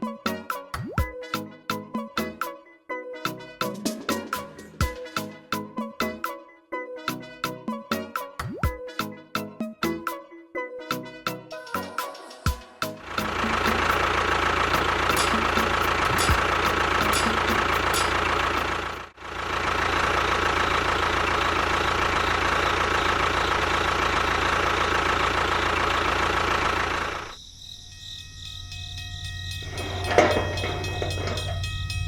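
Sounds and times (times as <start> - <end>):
constant high tone: 11.5 - 19.0, 20.2 - 32.0.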